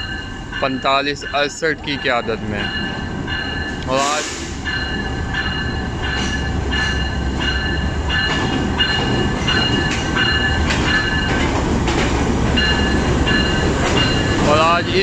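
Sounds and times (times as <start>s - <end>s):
rail-joint clacks: 0.0s - 15.0s
train coaches rumbling: 0.0s - 15.0s.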